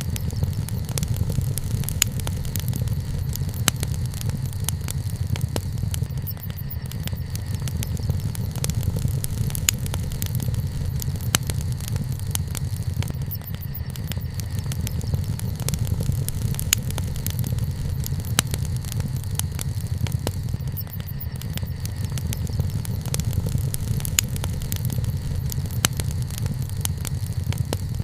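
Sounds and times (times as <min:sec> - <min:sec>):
campfire crackling and popping: 0:00.0 - 0:28.0
low fire rumble: 0:00.0 - 0:28.0.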